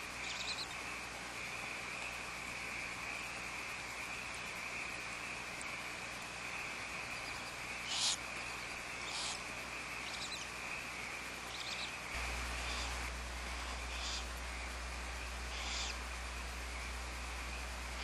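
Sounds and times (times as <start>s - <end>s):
crickets chirring: 0.0s - 18.0s
owls hissing screeches: 7.8s - 8.2s.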